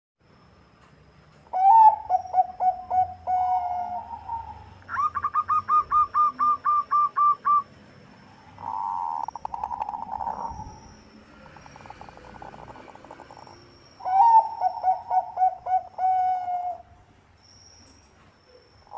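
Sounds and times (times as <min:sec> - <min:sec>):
dove cooing: 0:01.5 - 0:07.6, 0:08.6 - 0:10.8, 0:11.4 - 0:17.0.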